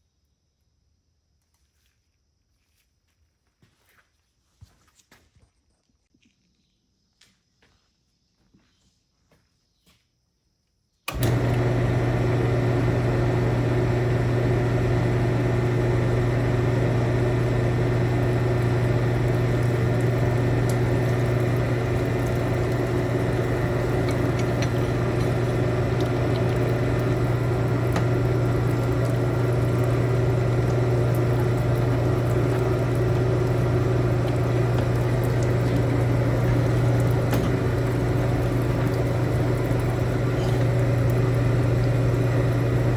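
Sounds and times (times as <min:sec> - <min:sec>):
machine motor humming: 0:11.1 - 0:42.9.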